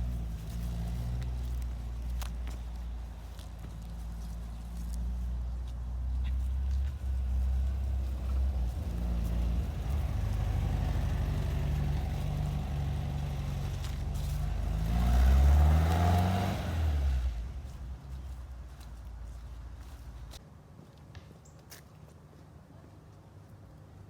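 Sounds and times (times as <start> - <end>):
car engine idling and revving: 0.0 - 20.4.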